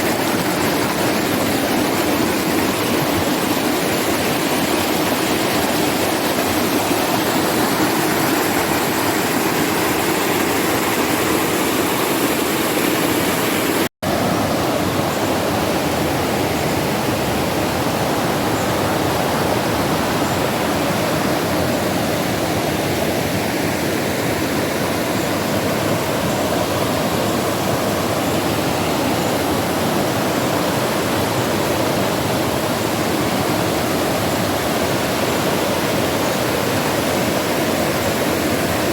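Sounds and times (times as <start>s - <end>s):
rushing river water: 0.0s - 38.9s.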